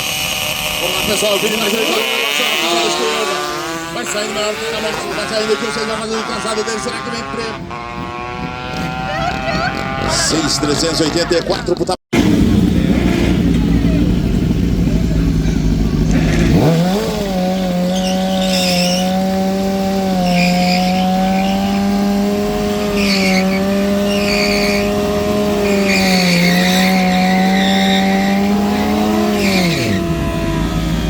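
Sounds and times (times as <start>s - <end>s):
motorcycle engine revving: 0.0s - 31.0s
tyre spinning and squealing: 17.3s - 30.1s.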